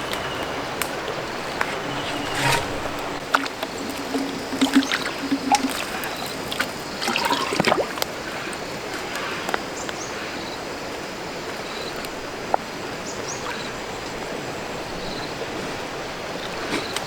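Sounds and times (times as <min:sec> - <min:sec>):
running lapping water: 0:00.0 - 0:09.6.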